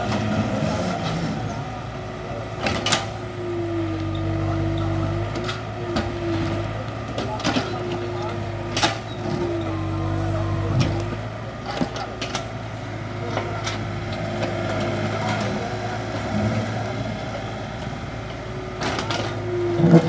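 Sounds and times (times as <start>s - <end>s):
hydraulic whine: 0.0s - 13.0s
excavator diesel engine: 0.0s - 20.0s.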